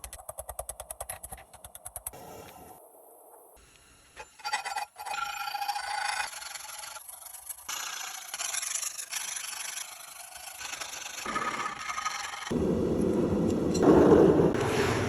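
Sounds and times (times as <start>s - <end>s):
file rasping on steel: 4.2s - 12.5s.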